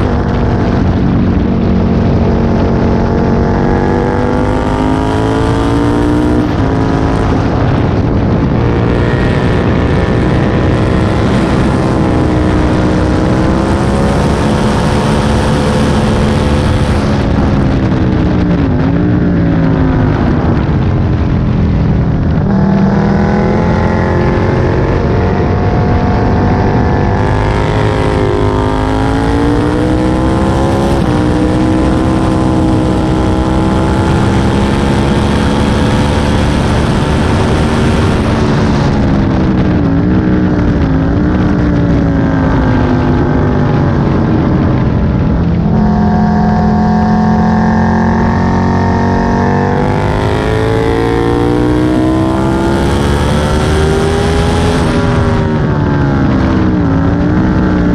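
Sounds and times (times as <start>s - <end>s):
motorcycle engine revving: 0.0s - 57.9s
wind rush: 0.0s - 57.9s.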